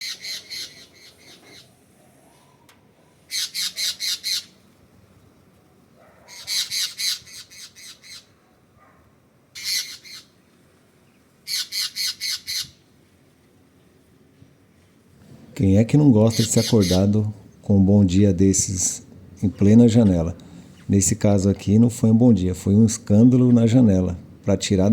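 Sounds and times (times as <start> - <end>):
bird squawking: 0.0 - 1.7, 3.3 - 4.6, 6.3 - 8.3, 9.6 - 10.4, 11.4 - 12.8, 16.2 - 17.3.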